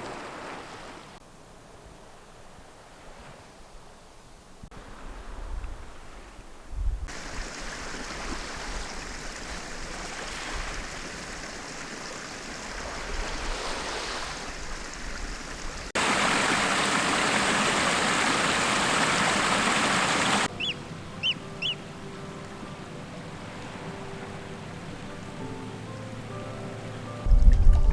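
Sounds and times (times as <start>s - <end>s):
rushing water: 0.0s - 1.2s, 7.1s - 27.9s
high bird chirps: 20.5s - 21.8s.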